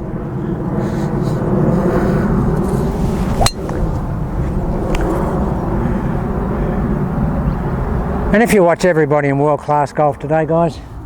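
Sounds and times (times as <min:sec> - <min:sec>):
wind buffeting microphone: 0:00.0 - 0:11.0
golf club striking ball: 0:02.6 - 0:04.2.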